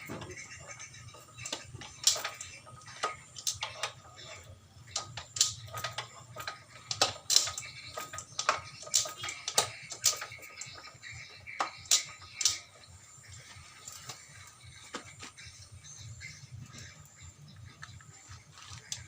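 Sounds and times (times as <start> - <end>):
metal clicks and knocks: 1.3 - 12.7.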